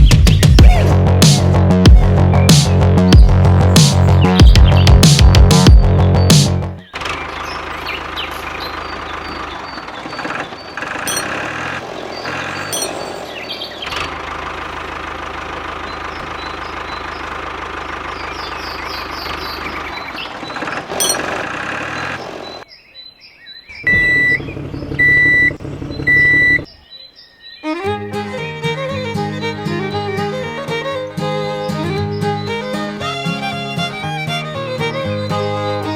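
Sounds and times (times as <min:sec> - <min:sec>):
small engine running: 0:06.9 - 0:22.6, 0:23.9 - 0:26.7, 0:28.3 - 0:35.9.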